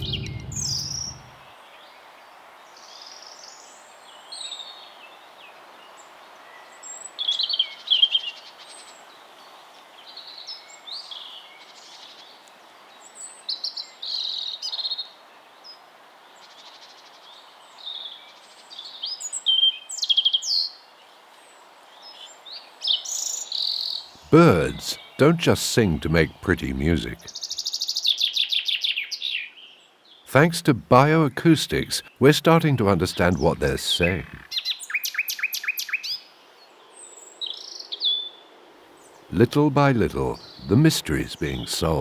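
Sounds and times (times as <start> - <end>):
faint background hiss: 0.0 - 1.4, 24.2 - 27.3, 30.3 - 34.4, 39.3 - 42.0.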